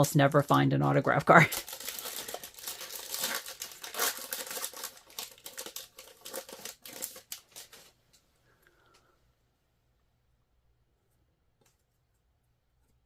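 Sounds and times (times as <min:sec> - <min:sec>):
wrapper crinkling: 0:00.0 - 0:08.0.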